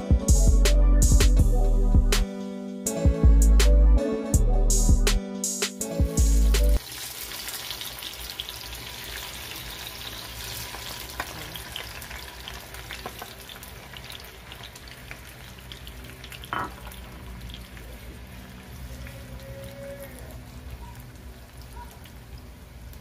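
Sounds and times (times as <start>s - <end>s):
tomatoes sizzling in oil: 6.8s - 23.0s.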